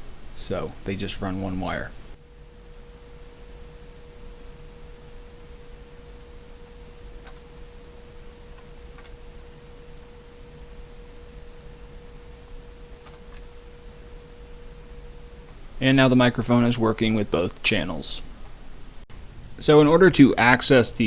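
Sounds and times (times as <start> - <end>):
low background hiss: 0.0 - 21.0
steady pure tone: 0.0 - 21.0
faint clicks: 7.1 - 7.5, 13.0 - 13.5.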